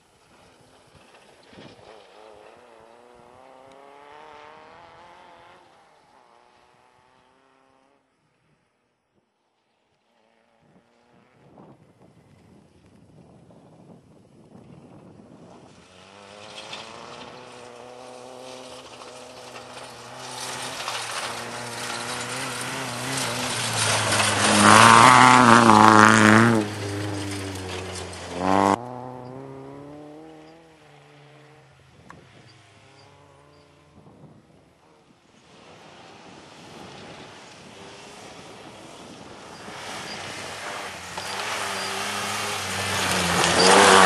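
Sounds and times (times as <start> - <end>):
rally car engine passing: 0.2 - 8.1, 15.7 - 44.0
distant car engine: 15.7 - 44.0.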